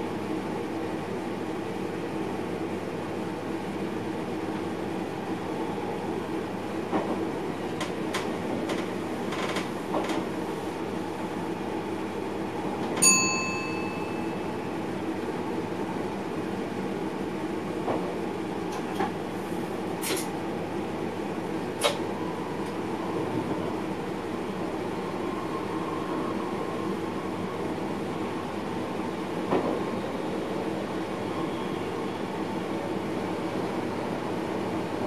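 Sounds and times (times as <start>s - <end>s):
train running noise in cab: 0.0s - 35.0s
sharp metallic ding: 13.0s - 14.4s.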